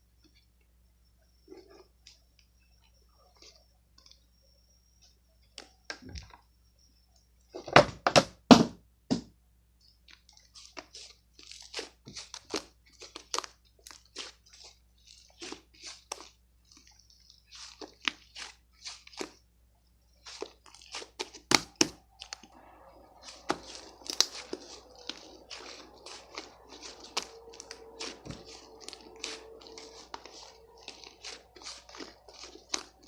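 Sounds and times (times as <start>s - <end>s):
faint steady hum: 0.0s - 33.0s
crunching and chewing: 10.0s - 33.0s.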